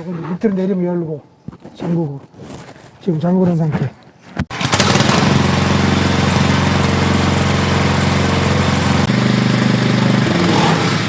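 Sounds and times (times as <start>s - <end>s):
small gasoline engine running: 4.5s - 11.0s.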